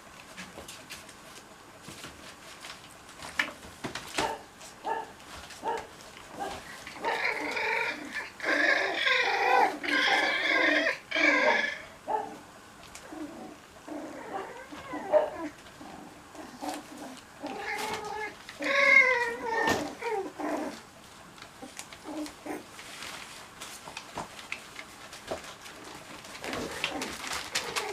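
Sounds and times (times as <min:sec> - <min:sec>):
puppies crying: 0:06.9 - 0:12.3, 0:13.0 - 0:15.6, 0:16.4 - 0:20.8.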